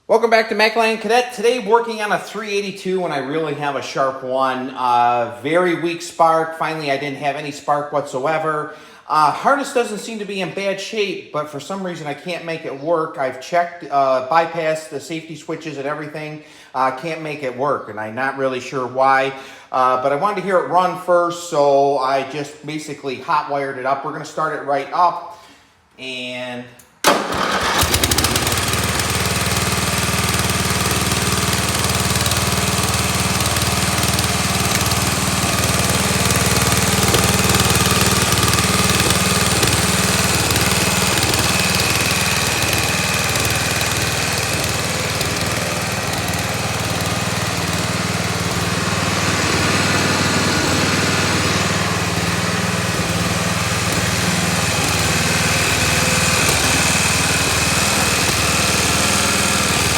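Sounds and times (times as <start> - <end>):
garden tractor engine running: 27.0 - 59.9.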